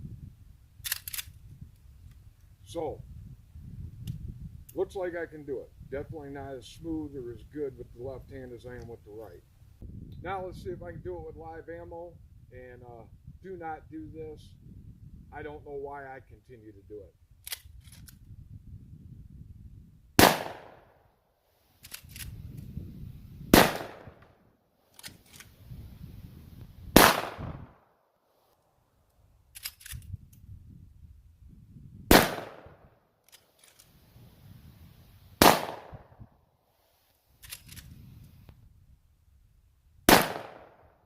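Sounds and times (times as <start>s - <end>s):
gunshots ringing out: 20.2s - 20.9s, 23.5s - 24.3s, 27.0s - 27.7s, 32.1s - 32.8s, 35.4s - 36.1s, 40.1s - 40.8s.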